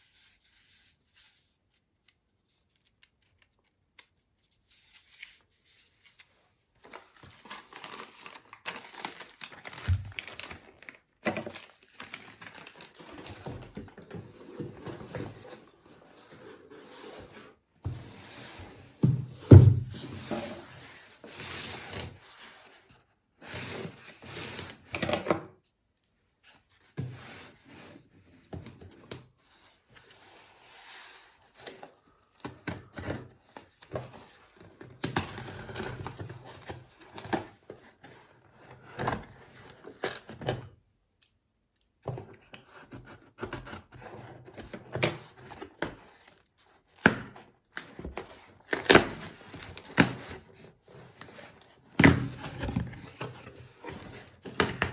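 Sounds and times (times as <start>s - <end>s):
packaging tearing and rustling: 6.0s - 17.0s.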